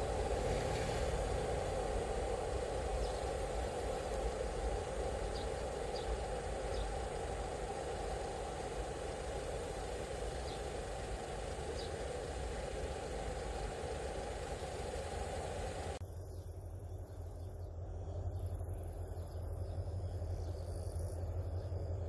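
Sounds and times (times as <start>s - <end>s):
freight train rumbling: 0.0s - 16.0s.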